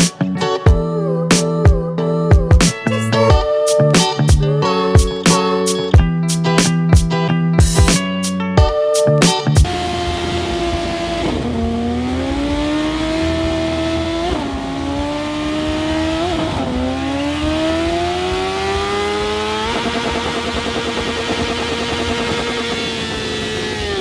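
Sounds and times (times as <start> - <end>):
motorcycle engine accelerating: 9.6 - 24.0.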